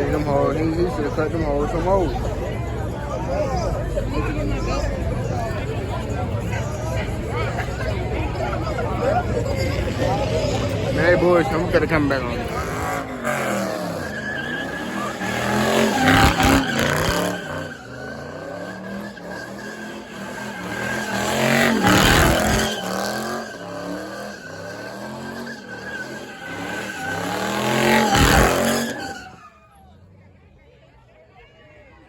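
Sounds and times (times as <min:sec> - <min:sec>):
car engine revving: 0:00.0 - 0:29.4
tires squealing: 0:00.0 - 0:30.5.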